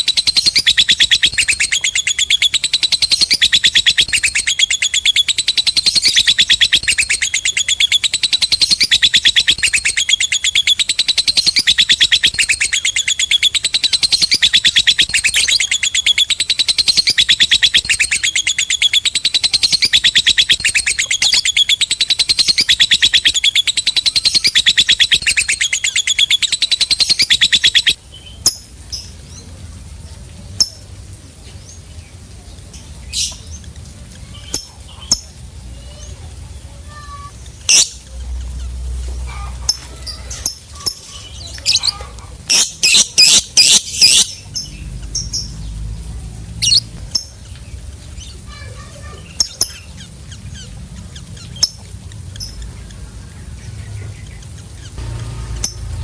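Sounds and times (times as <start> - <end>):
lovebird shrill chatter: 0.0 - 28.6, 36.9 - 45.6, 46.6 - 47.3.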